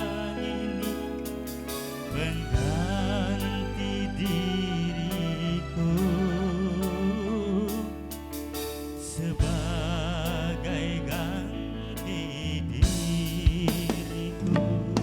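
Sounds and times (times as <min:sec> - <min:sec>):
band music with vibrato melody: 0:00.0 - 0:15.0
steady bass line: 0:00.0 - 0:15.0.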